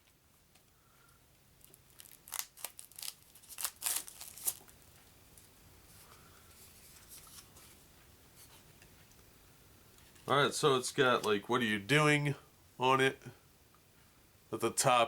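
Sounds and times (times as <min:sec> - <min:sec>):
packaging crackling and ripping: 0:01.6 - 0:04.9
faint handling of packaging: 0:01.6 - 0:08.7.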